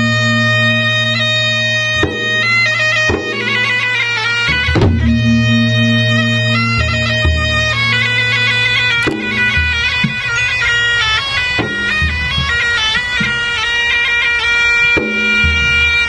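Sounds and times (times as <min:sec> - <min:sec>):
shrill reed wind instrument melody: 0:00.0 - 0:16.0
low drum strokes: 0:04.5 - 0:08.5.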